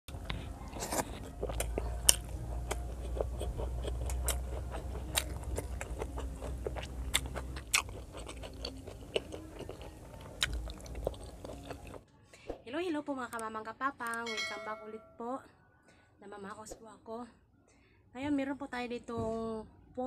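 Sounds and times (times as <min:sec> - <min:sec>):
crunchy chewing and biting: 0:00.1 - 0:12.0
wet mouth clicks: 0:00.2 - 0:12.0.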